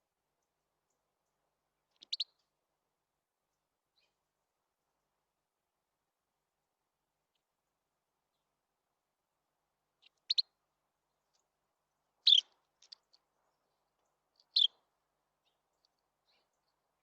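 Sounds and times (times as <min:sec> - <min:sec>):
songbird high chirps: 0:00.4 - 0:02.5, 0:10.0 - 0:10.6, 0:12.2 - 0:16.8.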